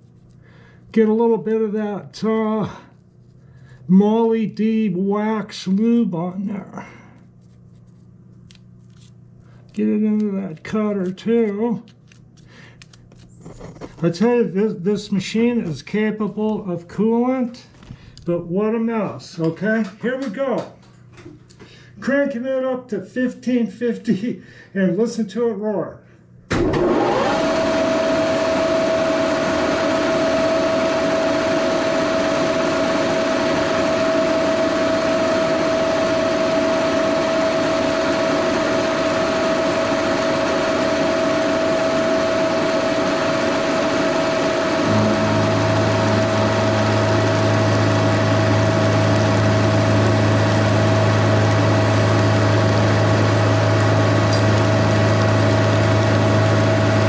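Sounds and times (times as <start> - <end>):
milling machine roar and gear whine: 26.5 - 57.0
deep steady hum: 28.4 - 57.0.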